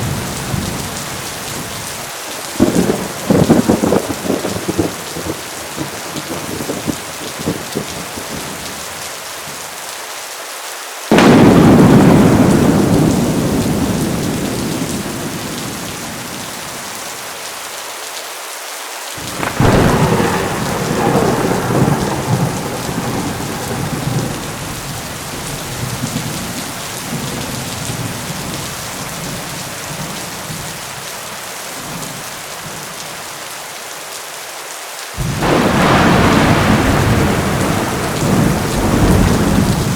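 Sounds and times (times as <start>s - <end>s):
heavy rain: 0.0s - 39.9s
thunder cracking and rumbling: 2.5s - 8.6s, 11.1s - 16.9s, 19.2s - 30.7s, 35.2s - 39.9s.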